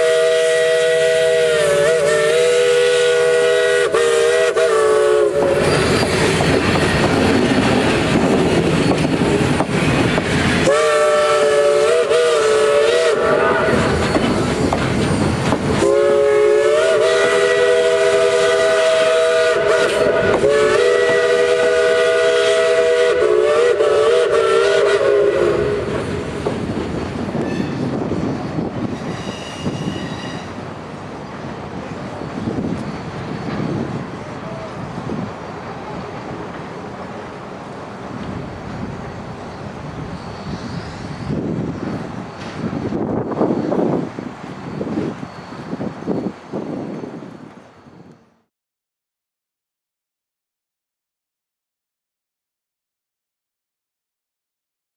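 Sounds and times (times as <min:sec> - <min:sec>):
steam locomotive whistle: 0:00.0 - 0:06.5, 0:10.5 - 0:14.8, 0:15.8 - 0:26.4, 0:28.5 - 0:30.6
train rumbling and clattering: 0:05.0 - 0:48.4.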